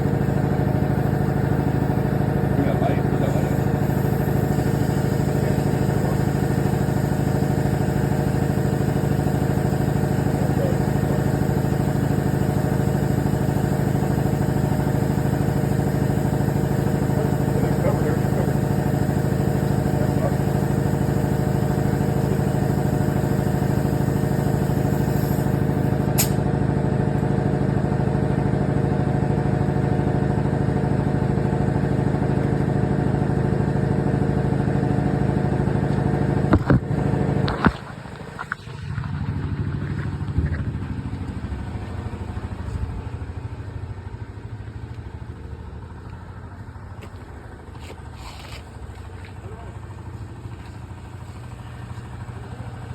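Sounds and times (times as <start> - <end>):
motor humming: 0.0 - 43.5.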